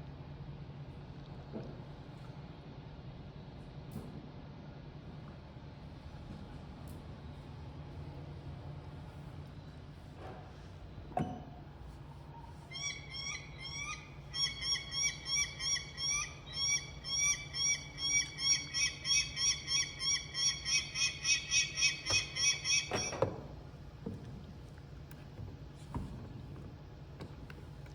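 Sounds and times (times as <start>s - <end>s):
steady low hum: 0.0s - 27.9s
rapid bird-like call: 12.7s - 23.2s.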